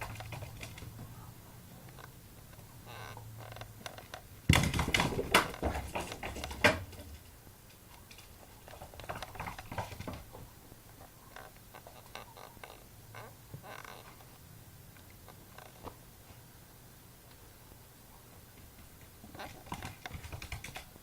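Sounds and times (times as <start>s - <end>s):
dog paws scrabbling: 0.0s - 1.2s, 4.5s - 7.3s, 8.0s - 10.5s, 18.7s - 21.0s.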